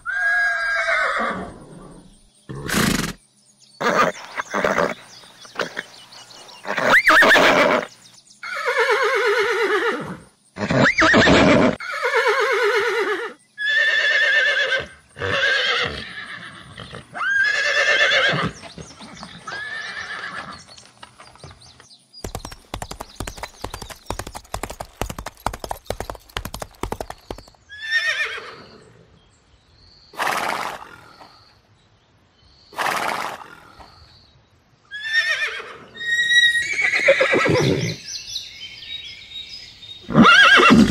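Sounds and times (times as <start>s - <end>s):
horses whinnying: 0.0s - 3.2s, 3.8s - 5.9s, 6.6s - 20.7s, 26.9s - 28.8s, 34.9s - 38.0s, 40.1s - 40.9s
rapid hoofbeats: 20.6s - 27.6s.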